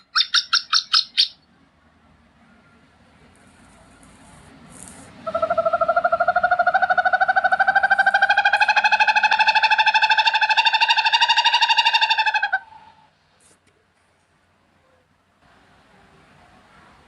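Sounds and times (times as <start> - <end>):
owl trilling: 0.0 - 1.4, 5.2 - 13.1.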